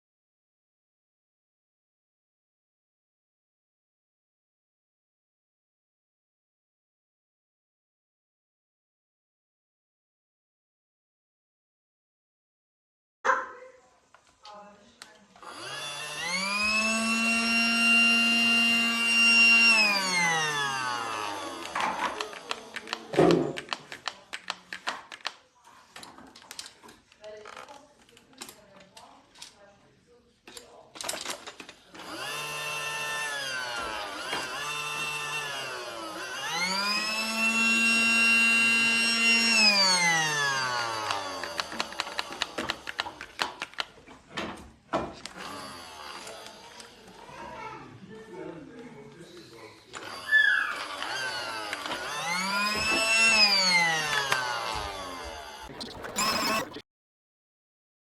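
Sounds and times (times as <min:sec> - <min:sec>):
vacuum cleaner motor whine: 0:15.4 - 0:23.1, 0:32.0 - 0:42.0, 0:50.0 - 0:56.8.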